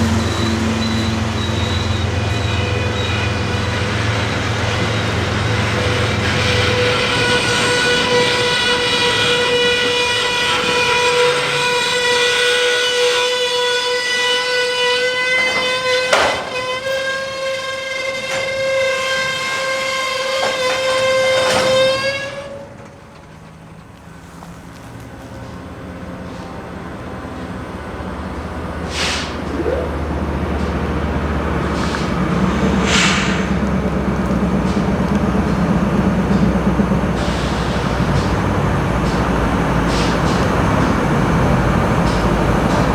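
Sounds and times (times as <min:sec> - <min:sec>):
train brakes squealing: 0:00.0 - 0:24.6, 0:25.4 - 0:42.9
diesel locomotive low rumble: 0:00.0 - 0:42.9
air brake hisses: 0:28.8 - 0:30.1, 0:31.6 - 0:33.9, 0:37.2 - 0:38.4, 0:39.0 - 0:40.9.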